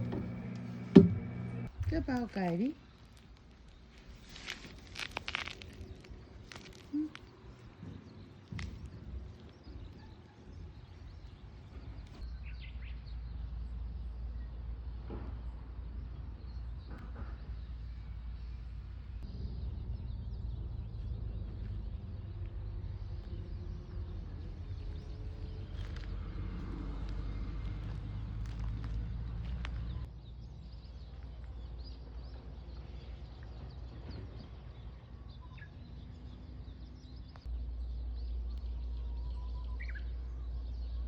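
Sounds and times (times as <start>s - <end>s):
low rumble: 18.4s - 30.1s.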